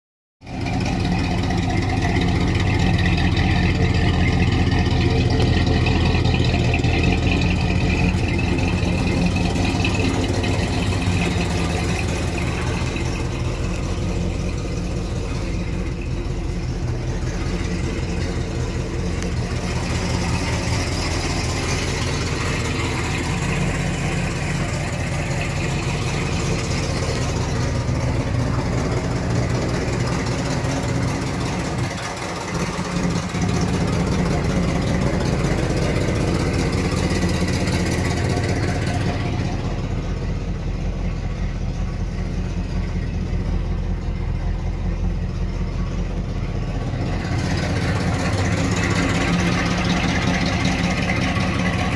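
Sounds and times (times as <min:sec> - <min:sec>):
car engine idling: 0:00.4 - 0:51.9.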